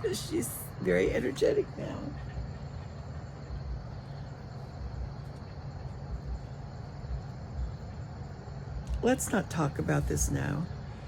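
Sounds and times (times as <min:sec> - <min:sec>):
insect chirring: 0:00.0 - 0:11.0
low rumble: 0:00.7 - 0:09.0.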